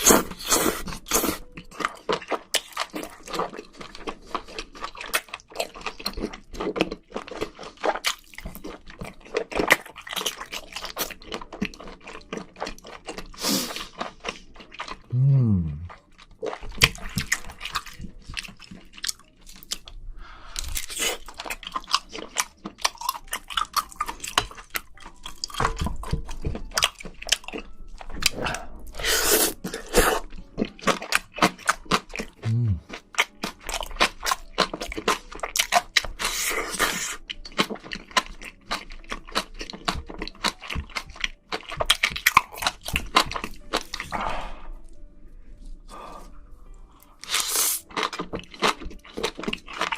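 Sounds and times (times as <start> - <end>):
wet chewing and mouth smacks: 0.0 - 15.1, 15.8 - 45.1, 45.8 - 49.9.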